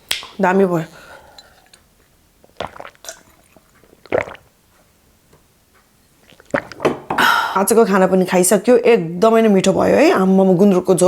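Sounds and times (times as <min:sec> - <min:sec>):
wet chewing and slurping: 0:01.3 - 0:04.9, 0:06.2 - 0:06.8.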